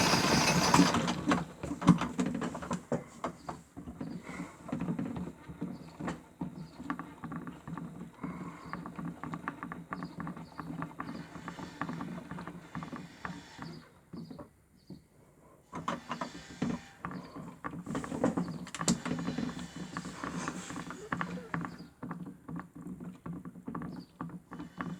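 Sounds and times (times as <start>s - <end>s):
small motor hum: 0.0s - 1.1s
toy washing machine water sloshing: 0.0s - 1.1s.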